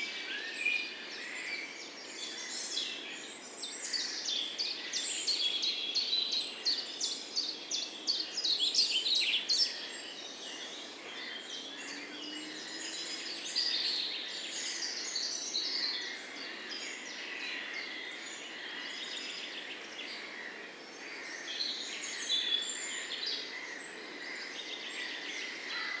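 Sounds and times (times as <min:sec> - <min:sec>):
songbirds chirping and singing: 0:00.0 - 0:26.0.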